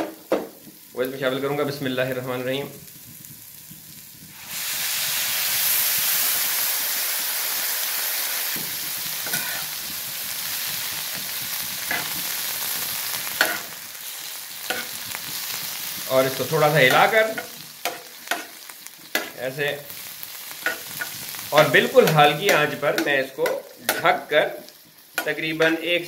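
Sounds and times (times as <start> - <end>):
onions frying in a wok: 0.0 - 26.0
water splashing into hot oil: 2.7 - 18.1
spatula scraping wok: 7.6 - 25.9.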